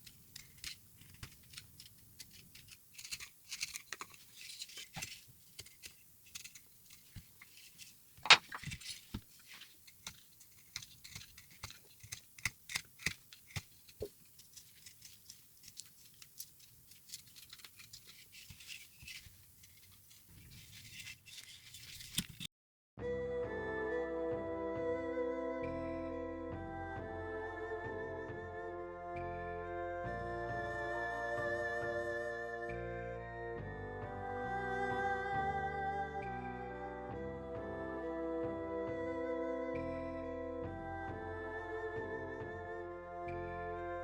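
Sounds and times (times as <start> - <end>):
carving tools scraping wood: 0.0 - 22.5.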